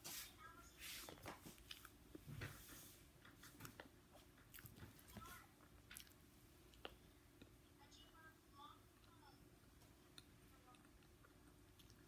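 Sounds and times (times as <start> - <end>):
person chewing crunchy fried food: 3.5 - 4.9, 5.6 - 7.5, 10.1 - 12.0.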